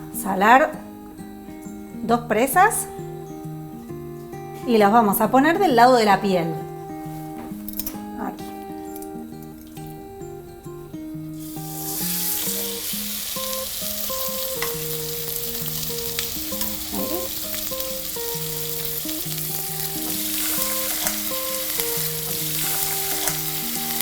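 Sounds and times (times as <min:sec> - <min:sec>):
background music with held notes: 0:00.0 - 0:24.0
chicken sizzling in hot oil: 0:11.4 - 0:24.0.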